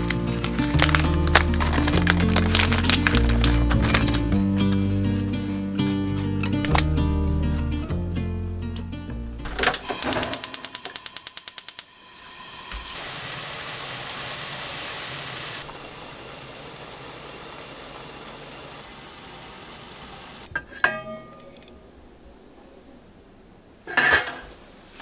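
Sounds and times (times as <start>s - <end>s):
steady hiss: 9.8s - 20.5s
fast mechanical clicks: 9.9s - 11.9s.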